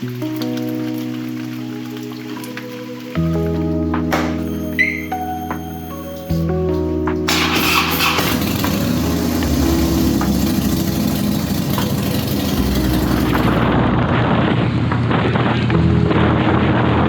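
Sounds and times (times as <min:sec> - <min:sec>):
motorcycle engine running: 0:07.3 - 0:14.2.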